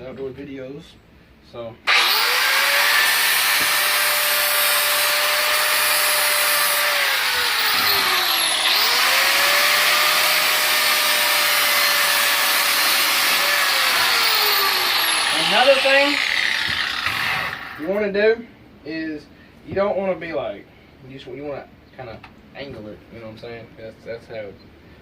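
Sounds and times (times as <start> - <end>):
electric grinder grinding steel: 1.9 - 17.9.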